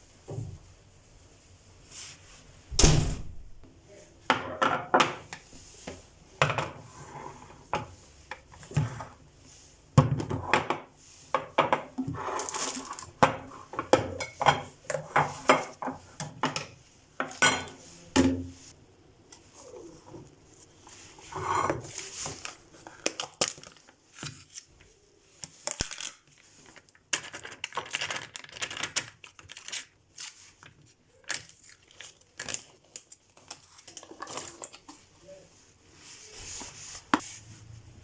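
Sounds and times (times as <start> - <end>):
kitchen containers knocking and rattling: 4.2 - 5.4, 10.0 - 18.6.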